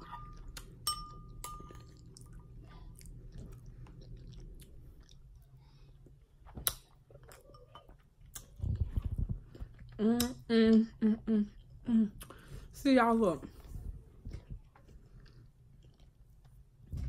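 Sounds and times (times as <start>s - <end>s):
person chewing food: 0.0s - 10.4s, 13.9s - 17.0s.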